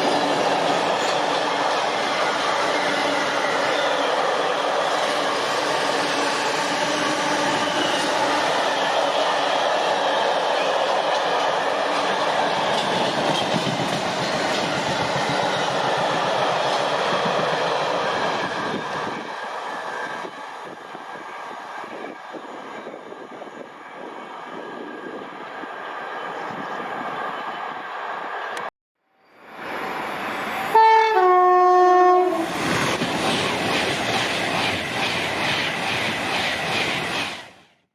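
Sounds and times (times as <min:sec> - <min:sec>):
train wheels clattering on rails: 0:04.9 - 0:23.3, 0:32.5 - 0:37.6
wheels clattering on rails: 0:10.5 - 0:17.5
two-note train horn: 0:30.7 - 0:32.4.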